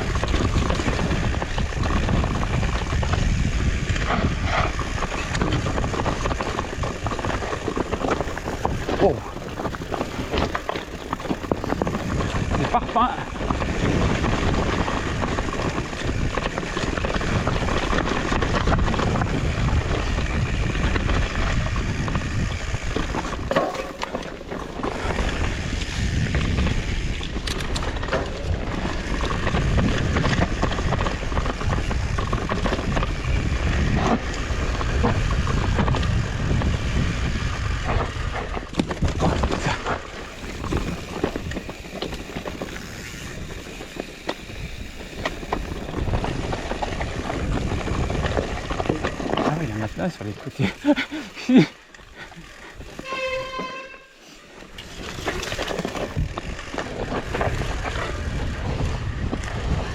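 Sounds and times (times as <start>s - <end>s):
bike knocks and rattles: 0.0s - 51.2s, 54.7s - 59.9s
wind buffeting microphone: 0.0s - 51.4s, 54.8s - 59.9s.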